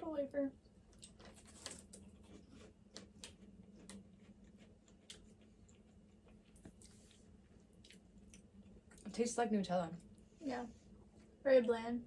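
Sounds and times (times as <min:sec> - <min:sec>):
wafers being bitten and chewed: 0:00.8 - 0:09.1.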